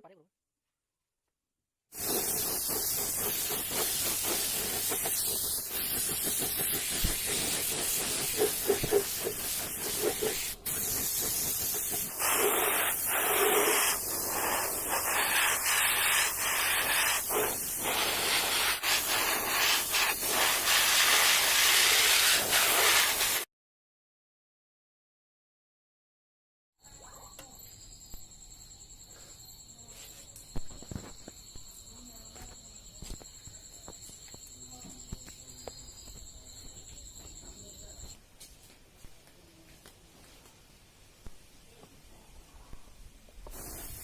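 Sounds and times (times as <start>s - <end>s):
loud hissing spray: 1.9s - 23.5s, 43.4s - 44.0s.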